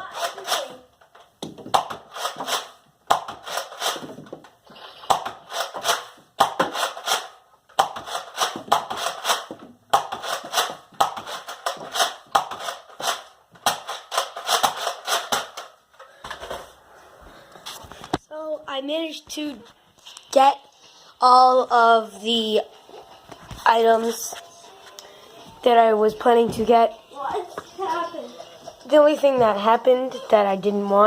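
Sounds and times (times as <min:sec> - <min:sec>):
toy blaster clacking: 0:00.0 - 0:00.8, 0:01.8 - 0:04.1, 0:04.9 - 0:15.8.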